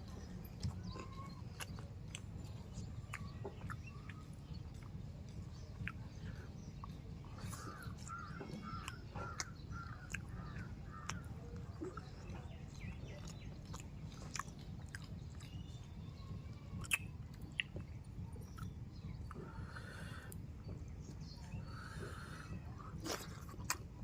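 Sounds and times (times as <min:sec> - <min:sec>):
steady low hum: 0:00.0 - 0:24.0
person chewing: 0:00.1 - 0:20.6, 0:21.2 - 0:24.0.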